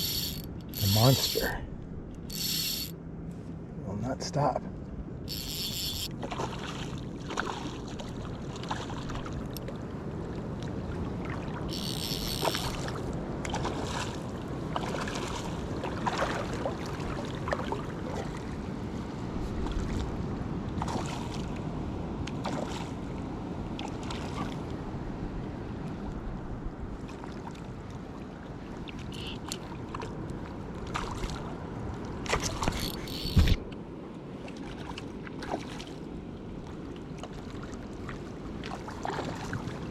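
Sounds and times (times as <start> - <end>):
short high-pitched buzzes: 0.0 - 1.5, 2.3 - 2.9, 5.3 - 6.1, 11.7 - 12.7, 29.2 - 29.4, 32.8 - 33.6
wind on microphone: 32.4 - 33.7.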